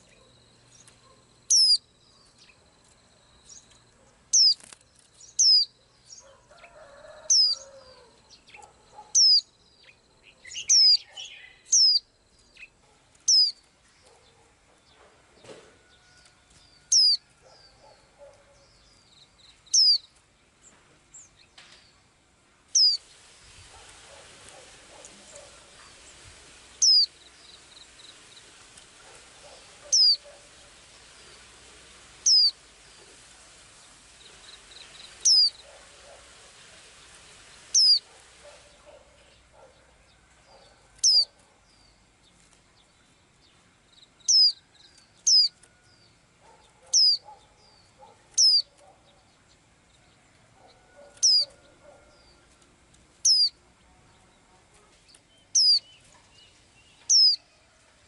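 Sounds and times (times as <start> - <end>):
background hiss: 0.0 - 58.0
small bird high down-slurred call: 1.5 - 1.8, 5.4 - 12.7, 13.3 - 13.6, 16.8 - 17.8, 22.8 - 23.0, 26.8 - 27.1, 29.8 - 30.2, 32.2 - 32.6, 34.8 - 35.6, 37.8 - 38.0, 41.0 - 41.4, 44.3 - 45.7, 46.9 - 47.2, 47.8 - 48.8, 51.0 - 51.6, 53.2 - 53.6, 55.6 - 56.0, 57.0 - 57.6.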